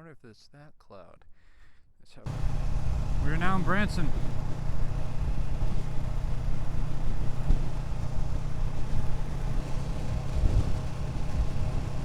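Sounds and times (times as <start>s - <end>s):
motorcycle engine running: 2.3s - 12.0s.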